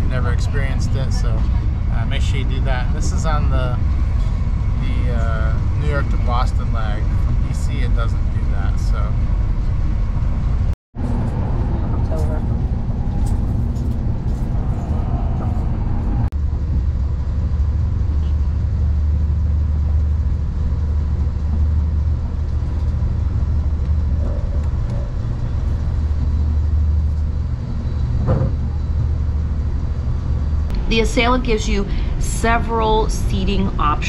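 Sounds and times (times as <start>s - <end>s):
train low rumble from inside: 0.0s - 34.0s.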